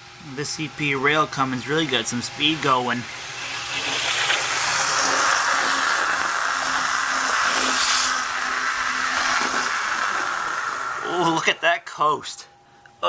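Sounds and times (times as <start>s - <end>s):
model train motor whir: 0.9s - 11.5s
wheels on rails: 1.0s - 11.5s.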